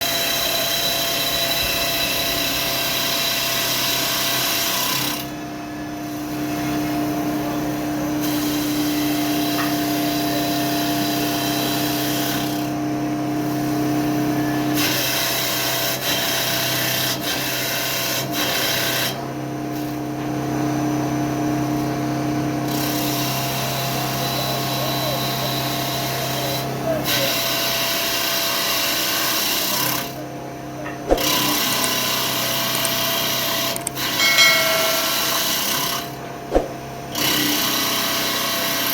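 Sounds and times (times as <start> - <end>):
sharp clicks: 32.7 - 33.0.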